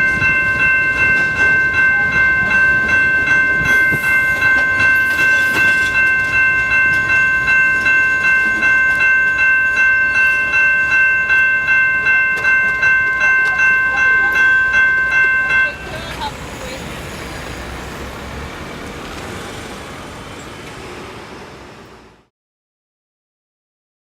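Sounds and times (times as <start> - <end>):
railway bell ringing: 0.0 - 18.9.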